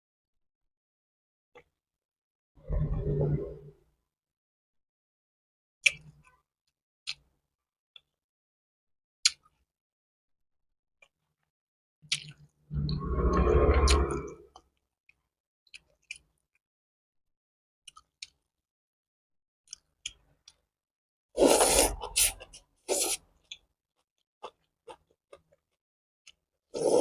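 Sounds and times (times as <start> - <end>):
loud eating noises: 21.4 - 23.2.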